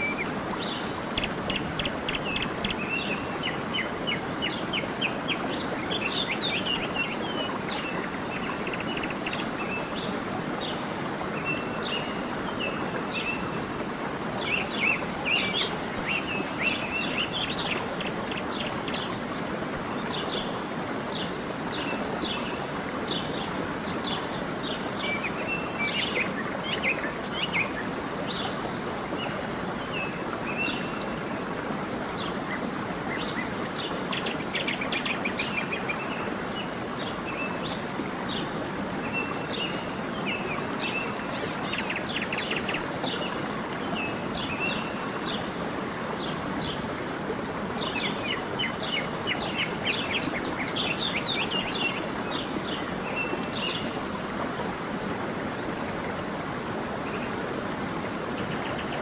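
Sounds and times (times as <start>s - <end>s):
songbirds chirping and trilling: 0.0s - 10.0s
stream running: 0.0s - 59.0s.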